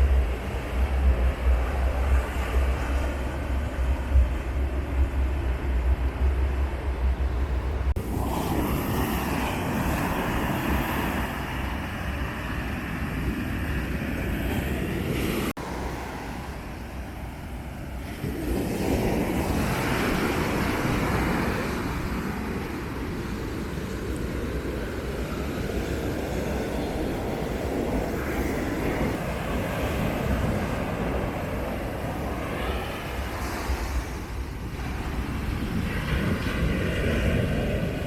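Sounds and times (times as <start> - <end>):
wind buffeting microphone: 0.0 - 38.0
ocean surf breaking on beach: 7.8 - 38.0.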